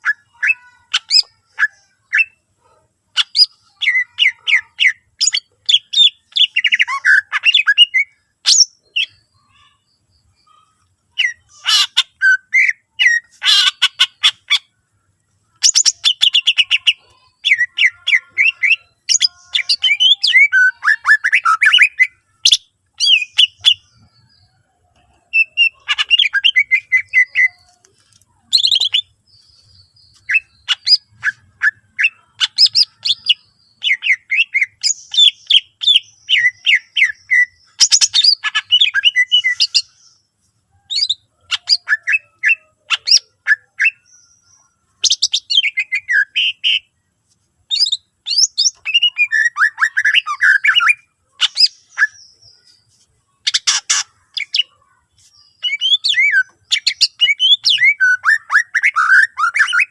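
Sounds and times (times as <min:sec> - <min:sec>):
songbird singing varied trills: 0:00.0 - 0:59.9.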